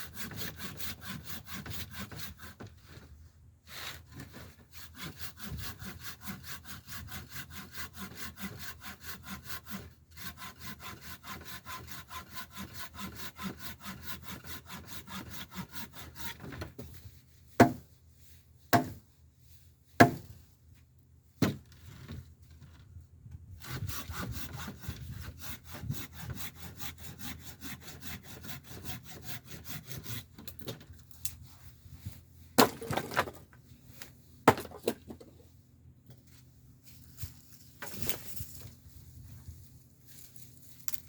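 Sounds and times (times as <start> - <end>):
hand saw cutting wood: 0.0 - 3.0, 3.7 - 17.8, 18.7 - 19.0, 20.0 - 20.3, 23.6 - 30.8
sharp wooden knocks: 18.8 - 19.0.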